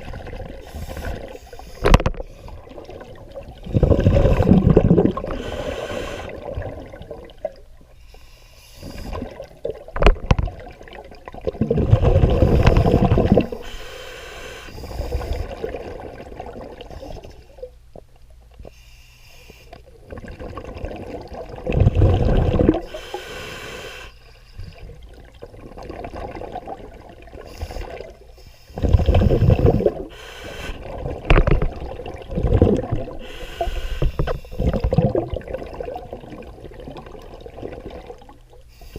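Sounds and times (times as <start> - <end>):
bubbling exhalations underwater: 0.0 - 5.6, 6.2 - 7.6, 9.0 - 13.7, 15.0 - 17.6, 20.0 - 23.0, 28.8 - 30.1, 30.8 - 38.5
hissing inhalations: 5.3 - 6.4, 12.3 - 15.6, 22.8 - 24.9, 27.5 - 31.0, 33.2 - 34.9.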